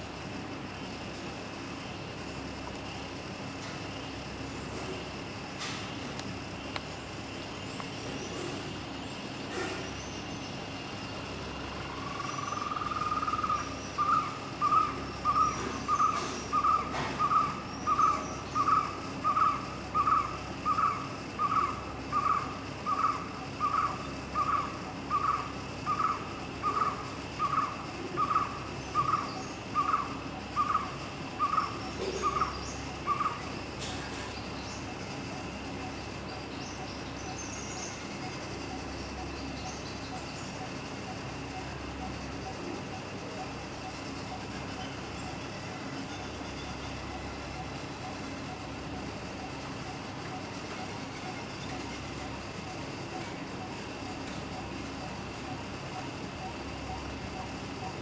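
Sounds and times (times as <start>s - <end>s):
bird hooting: 11.6s - 33.7s, 46.1s - 58.0s.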